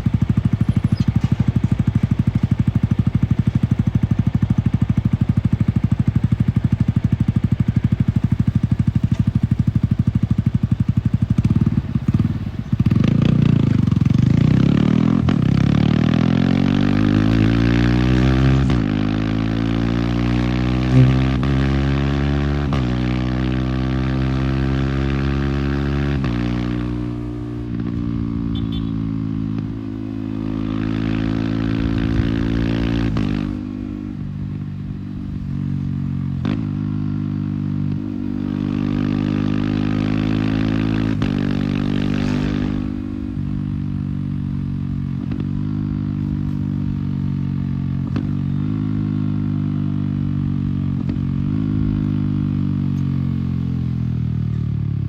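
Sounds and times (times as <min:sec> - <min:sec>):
motorcycle engine changing gear: 0:00.0 - 0:02.5.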